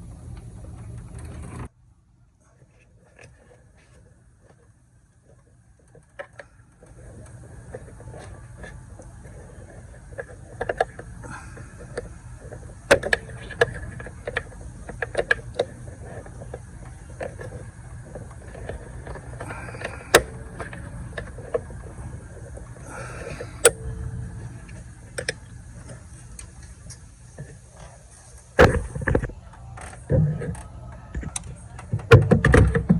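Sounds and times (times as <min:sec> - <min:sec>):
steady low hum: 0:00.0 - 0:32.9
scraping rustles: 0:02.4 - 0:32.0
hand tools clicking and knocking: 0:05.9 - 0:27.0.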